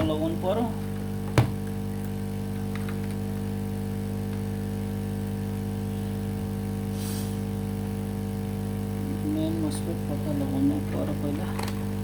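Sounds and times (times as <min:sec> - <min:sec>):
electrical hum: 0:00.0 - 0:12.0
short hiss: 0:06.9 - 0:07.6.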